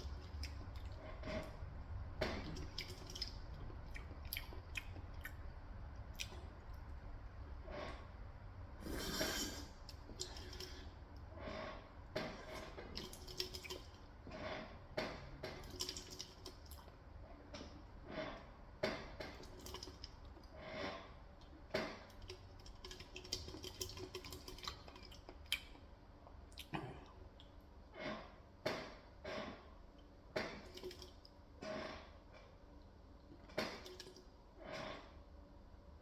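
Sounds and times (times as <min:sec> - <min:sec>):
chewing: 0:00.0 - 0:01.6, 0:02.2 - 0:05.4, 0:06.1 - 0:07.0.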